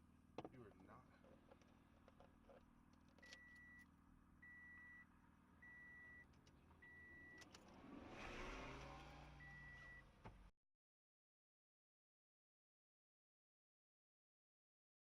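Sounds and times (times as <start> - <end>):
vehicle engine hum: 6.3 - 10.5
rush of vehicle noise: 7.5 - 10.0.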